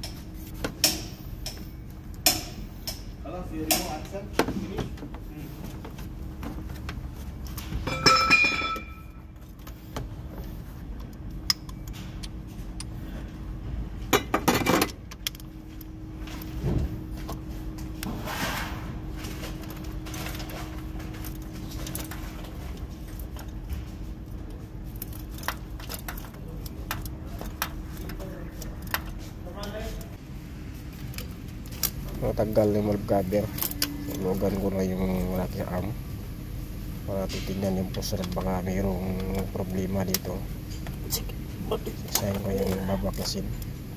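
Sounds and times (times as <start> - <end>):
faint steady hum: 0.0 - 43.9
metal tools clinking and rattling: 7.8 - 9.2.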